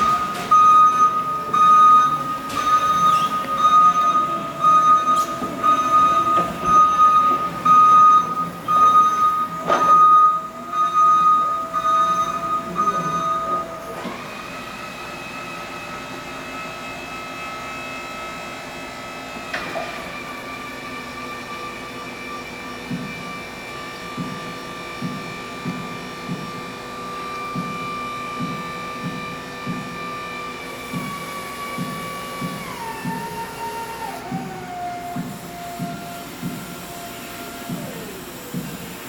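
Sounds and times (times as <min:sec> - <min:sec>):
warning alarm beeping: 0:00.0 - 0:13.9
machine noise: 0:00.0 - 0:14.5.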